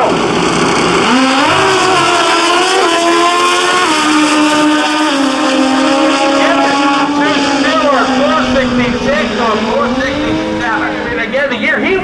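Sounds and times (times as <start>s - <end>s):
motorcycles at full throttle: 0.0s - 12.0s.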